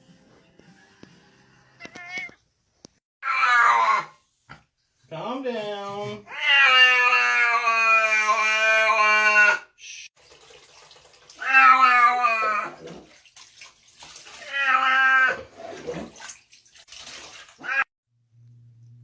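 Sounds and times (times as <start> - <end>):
cat yowling: 1.8 - 2.4, 3.2 - 4.2, 6.3 - 9.7, 11.4 - 12.9, 14.4 - 15.5, 17.6 - 17.9.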